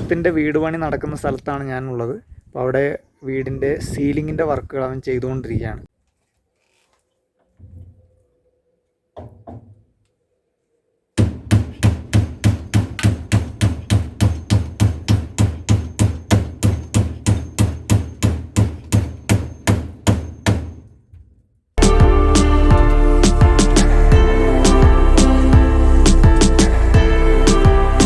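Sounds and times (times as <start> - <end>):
hammer driving nails into wood: 11.2 - 20.9.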